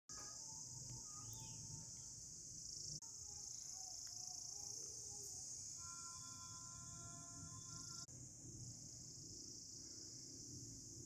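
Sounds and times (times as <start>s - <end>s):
chorus of insects shrilling: 0.4s - 8.1s.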